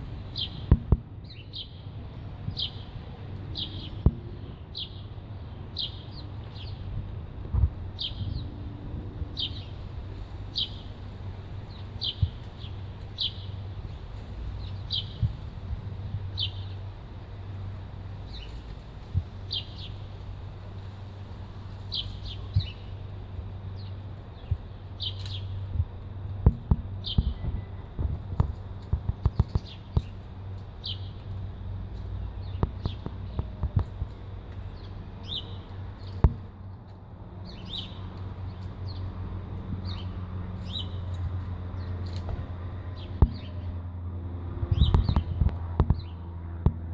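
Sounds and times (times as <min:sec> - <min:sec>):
low steady hum: 0:00.0 - 0:46.9
songbirds chirping: 0:00.0 - 0:46.9
sharp taps and knocks: 0:00.7 - 0:01.1, 0:26.4 - 0:30.2, 0:36.0 - 0:36.5, 0:43.2 - 0:43.5, 0:44.8 - 0:46.9.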